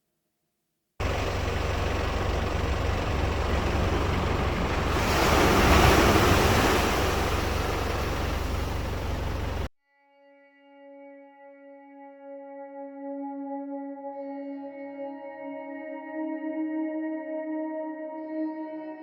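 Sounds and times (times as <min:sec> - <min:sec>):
ocean surf rumbling: 0:01.0 - 0:09.7.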